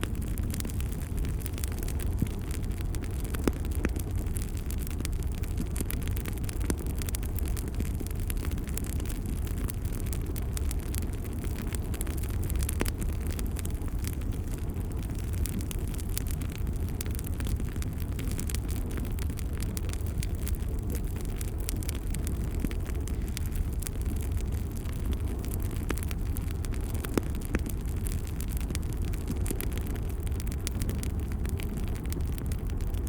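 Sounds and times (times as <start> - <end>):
wood fire crackling and popping: 0.0 - 33.0.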